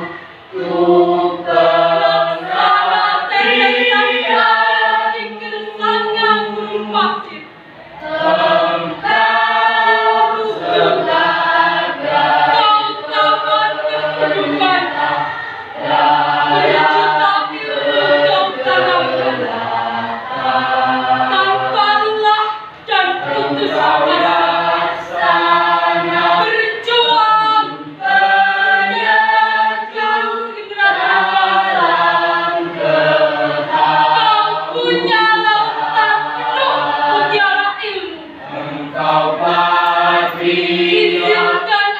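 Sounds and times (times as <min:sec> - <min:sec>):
choir singing: 0:00.0 - 0:41.9.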